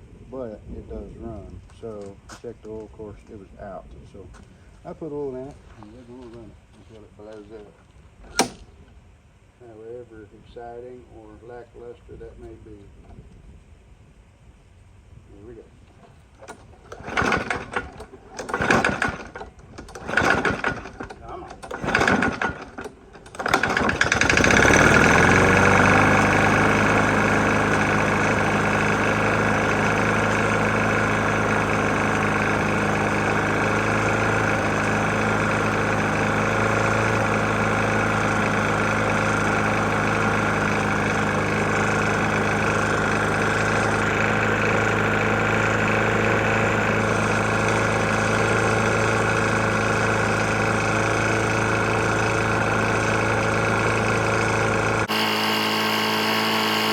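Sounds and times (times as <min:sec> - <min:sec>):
lawn mower engine knocking: 0:16.0 - 0:56.9.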